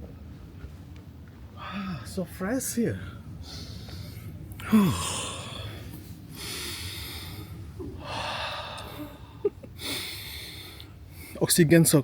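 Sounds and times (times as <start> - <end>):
man breathing deeply: 3.1 - 11.4.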